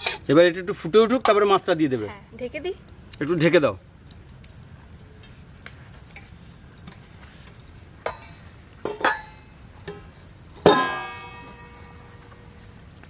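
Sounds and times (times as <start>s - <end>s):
plucked guitar notes: 10.7s - 12.7s.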